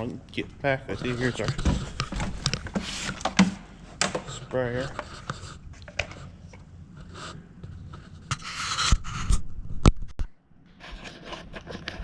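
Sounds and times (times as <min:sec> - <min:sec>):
objects scraping: 0:00.8 - 0:09.5.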